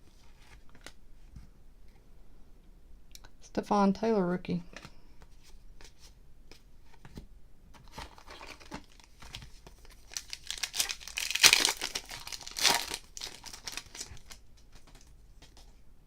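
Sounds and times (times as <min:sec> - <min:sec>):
cards being handled: 0:04.7 - 0:15.8
wrapper crinkling and tearing: 0:07.8 - 0:15.1.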